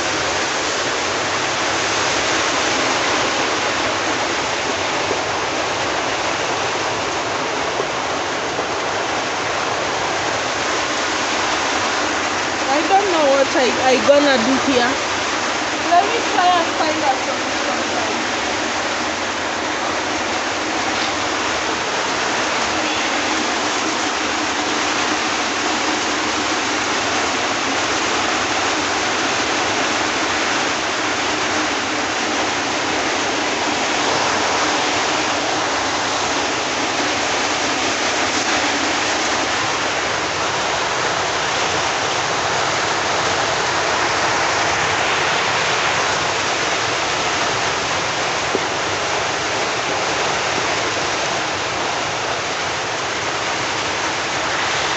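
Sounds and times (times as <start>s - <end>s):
heavy rain pouring: 0.0s - 54.9s
rainwater running: 0.0s - 54.9s.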